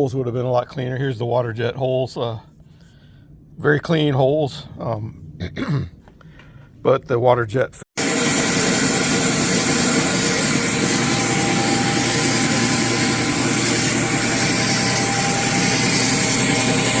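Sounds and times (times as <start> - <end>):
water jet cutter hiss: 8.0 - 17.0.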